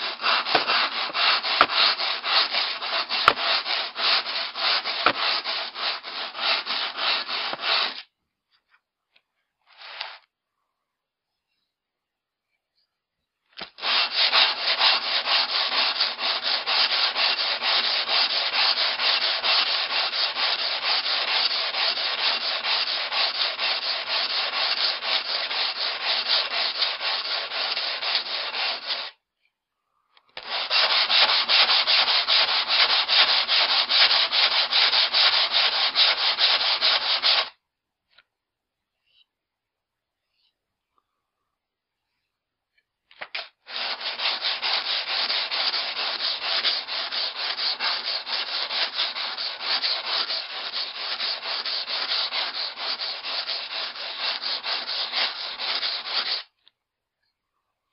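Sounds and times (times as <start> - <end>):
axe rubbing on sandpaper: 0.0 - 8.1, 9.7 - 10.2, 13.6 - 29.2, 30.4 - 37.6, 43.6 - 56.5.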